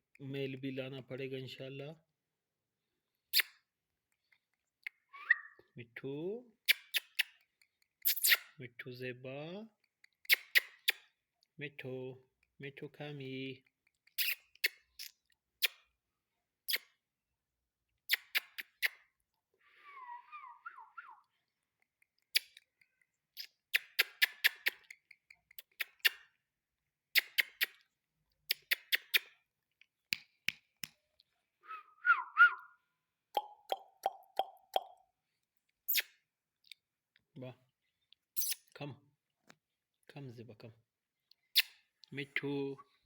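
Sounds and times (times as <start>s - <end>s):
parakeet whistled chirps: 5.1s - 5.7s, 31.7s - 32.8s.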